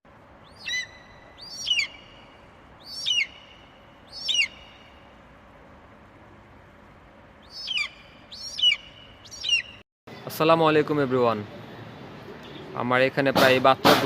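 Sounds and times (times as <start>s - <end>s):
bird calling: 0.4s - 5.2s, 7.4s - 9.8s.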